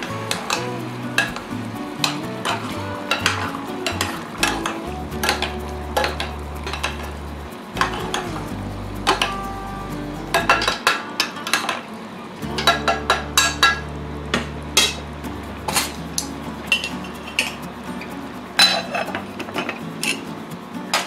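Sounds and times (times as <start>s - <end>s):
metal utensils clinking on a pot: 0.0s - 7.2s, 10.3s - 11.9s, 14.8s - 15.0s, 15.7s - 17.7s, 18.6s - 20.3s.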